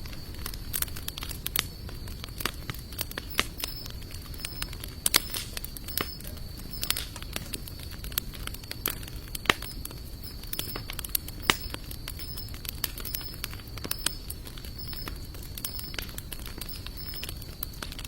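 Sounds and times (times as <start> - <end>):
fire crackling and popping: 0.0 - 18.0
faint high-pitched tone: 3.3 - 7.0, 9.6 - 10.9, 11.5 - 12.5, 13.1 - 14.2, 14.8 - 15.1, 15.7 - 16.0, 16.7 - 17.3.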